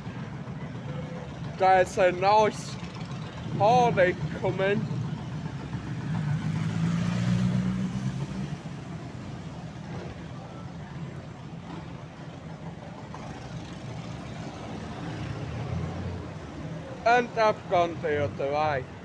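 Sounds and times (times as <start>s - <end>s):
motorcycle passing by: 4.9s - 10.3s, 13.2s - 17.0s.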